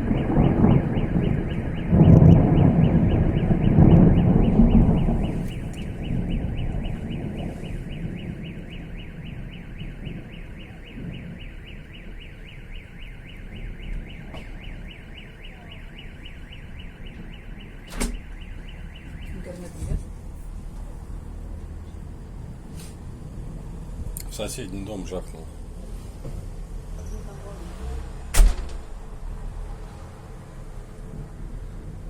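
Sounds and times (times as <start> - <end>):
car alarm tone: 0.0 - 19.9
thunder rumbling: 0.0 - 32.0.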